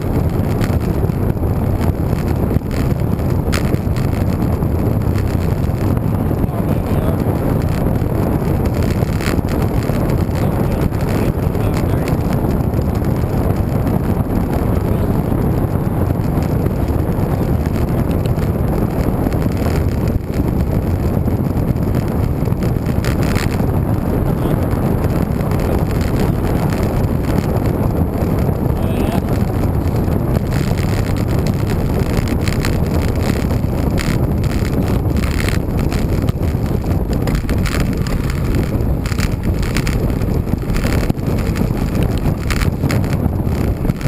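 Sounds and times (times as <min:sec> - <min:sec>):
wind rush on microphone: 0:00.0 - 0:44.0.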